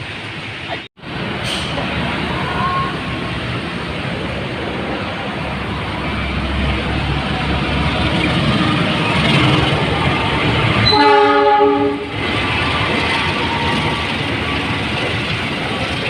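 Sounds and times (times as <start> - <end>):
train passing: 0.0 - 16.0
train horn blast: 10.8 - 12.2.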